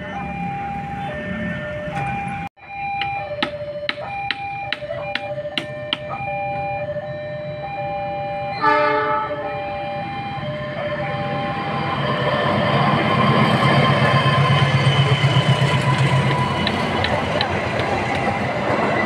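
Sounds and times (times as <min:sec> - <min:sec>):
locomotive engine and wheels: 0:00.0 - 0:19.0
train horn blast: 0:08.6 - 0:09.6.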